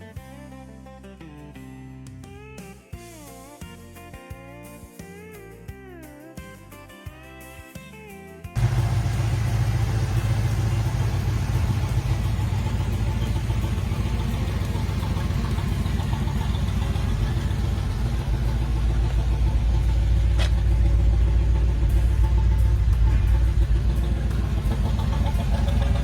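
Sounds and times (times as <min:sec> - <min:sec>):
car engine rumbling: 0:08.6 - 0:26.0.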